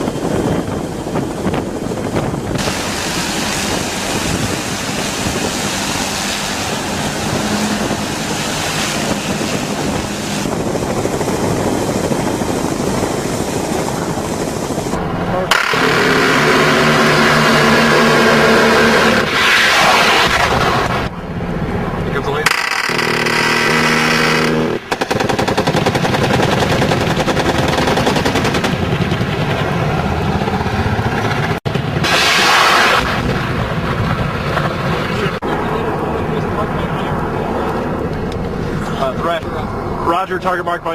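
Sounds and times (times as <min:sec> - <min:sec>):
helicopter engine and rotor: 0:00.0 - 0:19.1, 0:24.9 - 0:31.6
wind rush: 0:00.0 - 0:22.2, 0:24.6 - 0:40.1
rapid automatic gunfire: 0:22.5 - 0:29.2.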